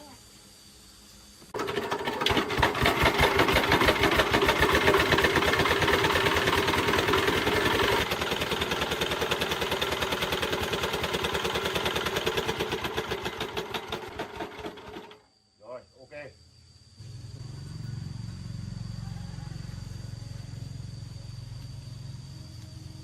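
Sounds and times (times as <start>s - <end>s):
diesel engine running: 1.6s - 15.1s.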